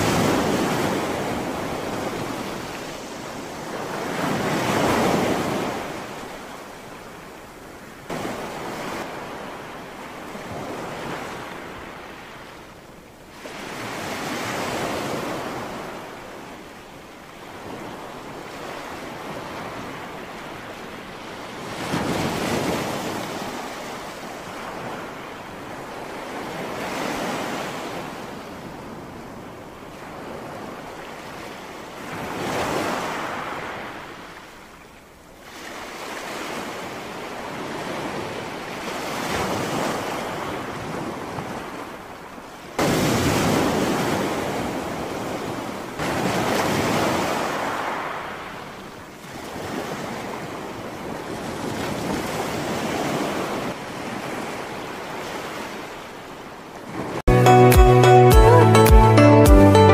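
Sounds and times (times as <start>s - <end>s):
waves breaking over rocks: 42.8s - 56.0s.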